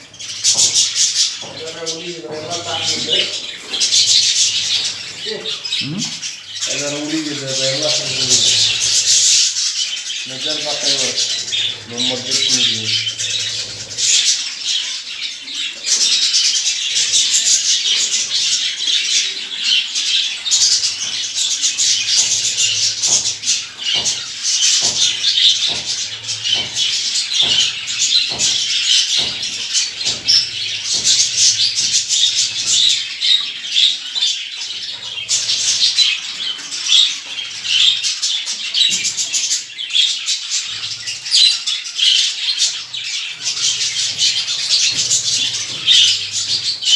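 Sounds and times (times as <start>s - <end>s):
small birds chirping: 0.0s - 46.9s
sharp taps: 20.8s - 32.9s.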